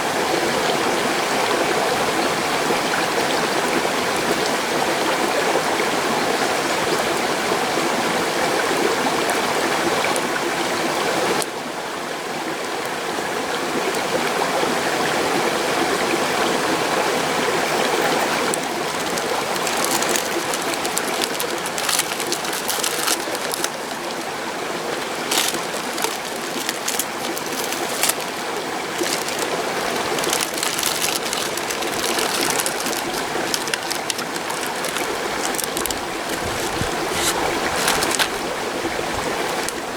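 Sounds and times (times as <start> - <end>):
stream rushing: 14.6 - 39.9
short sharp clicks and crackles: 18.3 - 24.3, 25.1 - 38.4.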